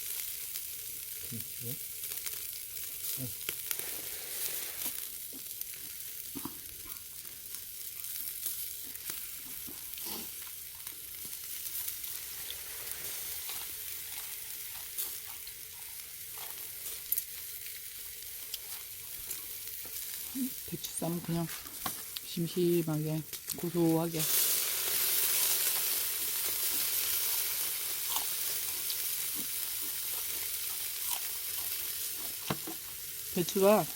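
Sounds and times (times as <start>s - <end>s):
meat sizzling on a grill: 0.0s - 33.9s.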